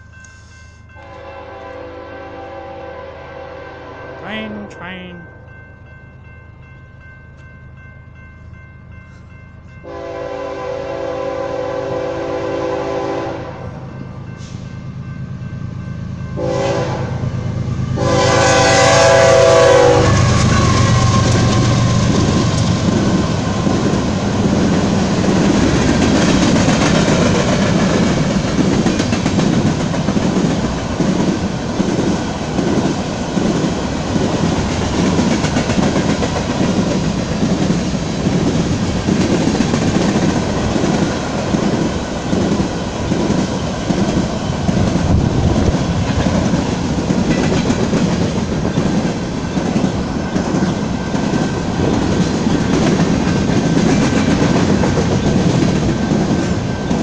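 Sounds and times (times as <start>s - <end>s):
locomotive rumbling past: 0.8s - 57.0s
locomotive air horn blasts: 1.0s - 4.2s, 9.8s - 13.8s, 16.4s - 17.2s, 18.0s - 20.3s
wheels clattering on rails: 20.4s - 57.0s.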